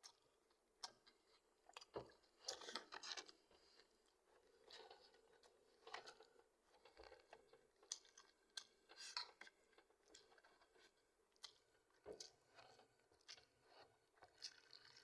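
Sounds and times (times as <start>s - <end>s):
person chewing and crunching: 0.0s - 15.0s.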